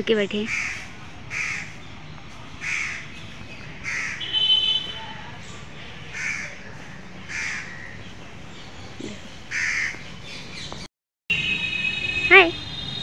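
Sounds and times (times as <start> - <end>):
outdoor background: 0.0 - 13.0
bird harsh caw calls: 0.5 - 1.8, 2.6 - 3.2, 3.8 - 4.8, 6.1 - 6.6, 7.3 - 8.0, 9.5 - 10.6.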